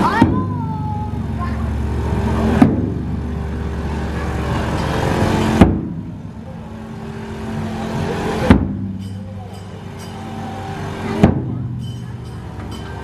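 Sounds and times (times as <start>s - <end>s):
large drum strikes: 0.0s - 3.7s, 4.7s - 6.3s, 8.2s - 12.8s
steady low hum: 0.0s - 13.0s.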